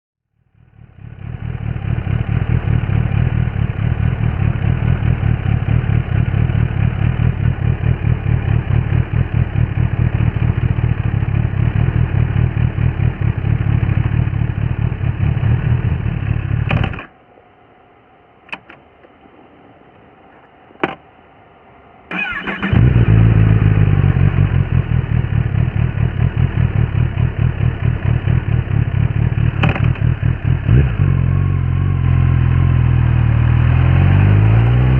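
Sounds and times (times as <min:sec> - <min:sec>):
motorcycle engine running: 0:00.5 - 0:17.0, 0:22.6 - 0:34.9
clicks: 0:18.5 - 0:19.4
engine cranking and starting: 0:22.1 - 0:23.1.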